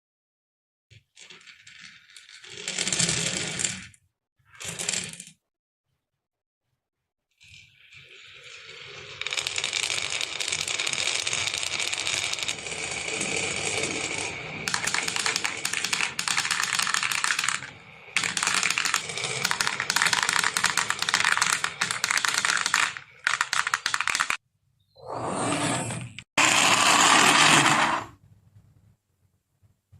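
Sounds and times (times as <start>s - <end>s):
marbles rattling down track: 7.4s - 24.4s.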